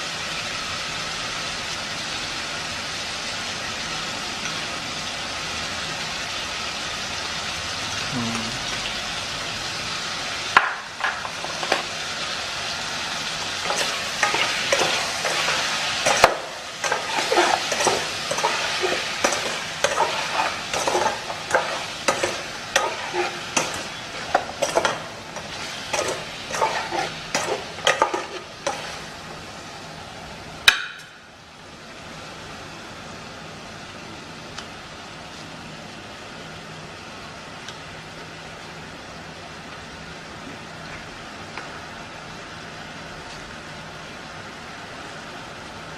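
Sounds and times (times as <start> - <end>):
food sizzling in a pan: 0.0 - 45.9
spatula scraping a pan: 13.6 - 29.1.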